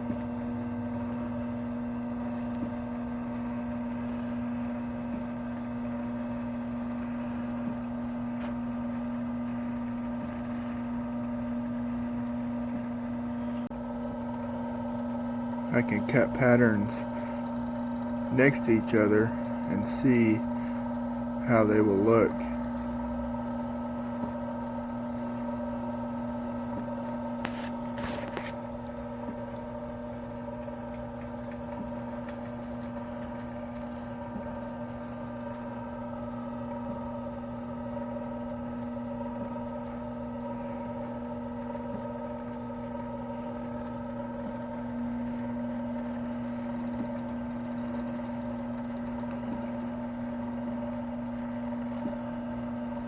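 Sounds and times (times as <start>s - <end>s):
lathe motor hum and whine: 0.0s - 53.0s.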